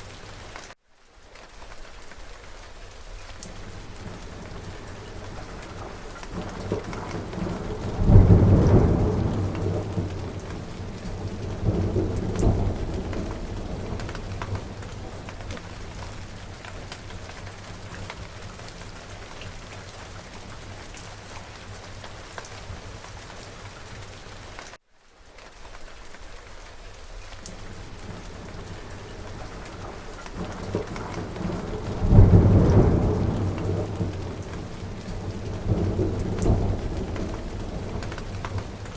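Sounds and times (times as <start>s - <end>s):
steady rain: 0.0s - 38.9s
rolling thunder: 3.6s - 19.0s, 27.6s - 38.9s.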